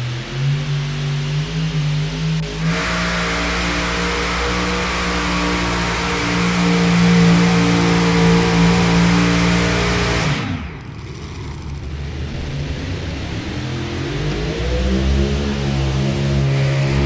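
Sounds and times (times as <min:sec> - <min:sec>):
tractor engines at full throttle: 0:00.0 - 0:17.0.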